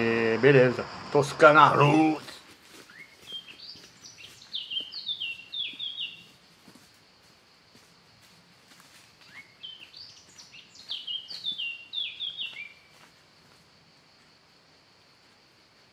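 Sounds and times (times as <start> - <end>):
faint steady hiss: 0.0 - 2.8.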